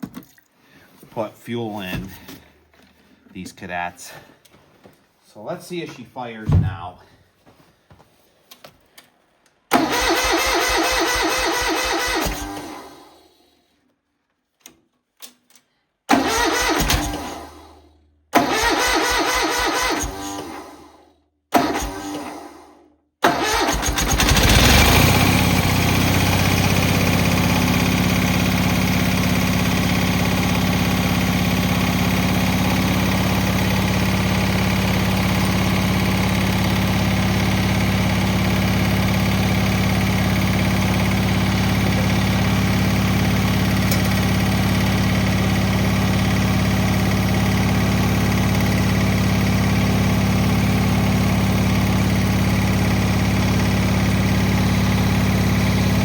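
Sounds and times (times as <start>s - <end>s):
garden tractor engine starting: 9.7s - 13.4s, 16.1s - 17.8s, 18.4s - 56.0s.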